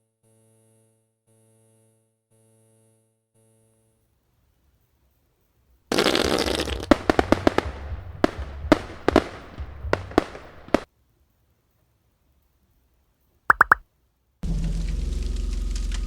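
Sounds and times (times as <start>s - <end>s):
fireworks crackling and banging: 5.9s - 10.9s.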